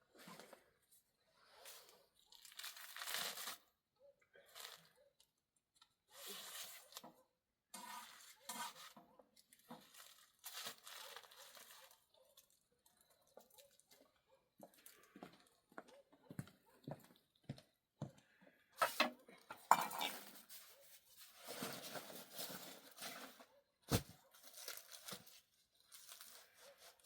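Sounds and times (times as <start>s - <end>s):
rustling tearing and crunching: 1.6s - 3.8s, 4.4s - 7.1s, 7.8s - 13.8s, 20.3s - 27.0s.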